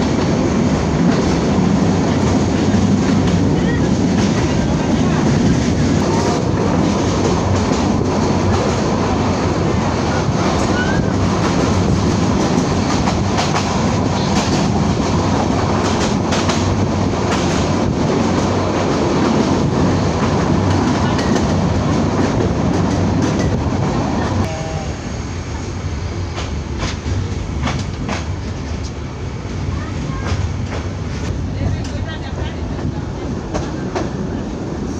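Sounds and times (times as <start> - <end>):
train wheels rumbling: 0.0 - 34.9
wheels clacking on rail joints: 26.3 - 29.0.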